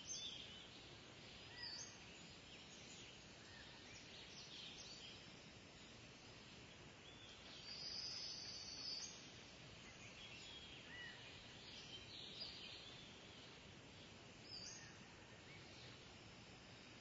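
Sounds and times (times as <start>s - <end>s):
outdoor background hiss: 0.0s - 17.0s
faint bird calls: 1.3s - 5.2s, 7.1s - 13.1s, 14.4s - 16.1s.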